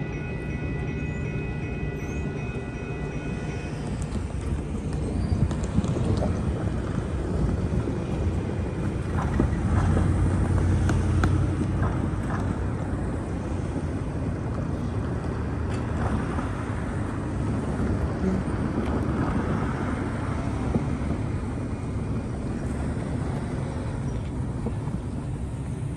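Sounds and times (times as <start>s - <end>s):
train wheels clicking: 0.0s - 13.9s
train rumbling: 0.0s - 25.9s
wind buffeting microphone: 2.2s - 25.9s.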